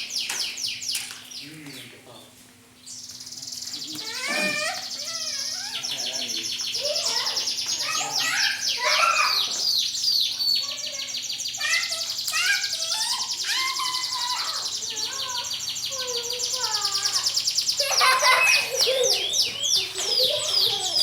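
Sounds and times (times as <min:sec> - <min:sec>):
canaries singing: 0:00.0 - 0:21.0.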